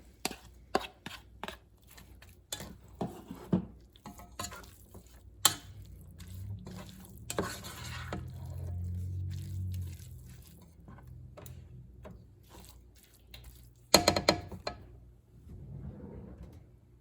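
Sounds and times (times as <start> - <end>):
utensil knocking against pot: 13.9 - 14.8.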